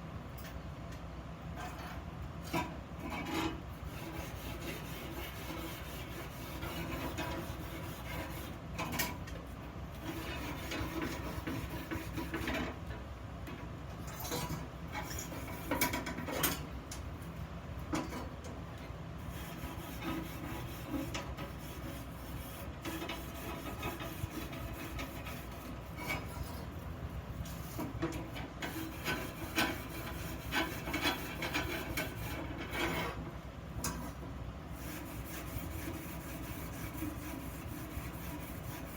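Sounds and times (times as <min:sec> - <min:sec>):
rasp scraping on iron: 0:02.5 - 0:09.2, 0:10.0 - 0:12.8, 0:14.2 - 0:16.7, 0:19.2 - 0:26.8, 0:27.4 - 0:38.9.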